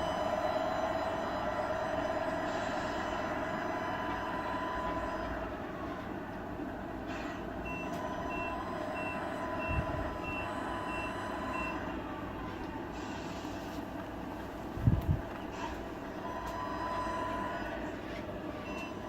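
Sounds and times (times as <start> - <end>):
diesel engine sound: 0.0 - 19.0
reversing beeper: 7.6 - 11.9.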